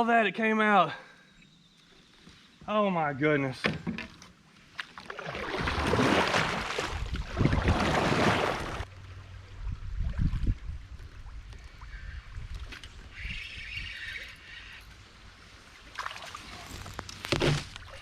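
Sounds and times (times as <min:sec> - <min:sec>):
quiet water sounds: 0:01.1 - 0:18.0
kayak rushing on river water: 0:04.9 - 0:13.2.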